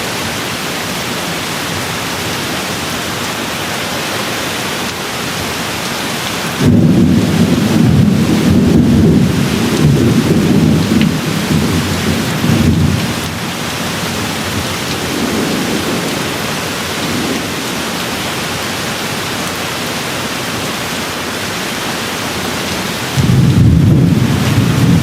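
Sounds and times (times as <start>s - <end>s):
heavy rain hissing: 0.0s - 25.0s
low thunder rumbling: 6.6s - 17.7s, 23.2s - 25.0s.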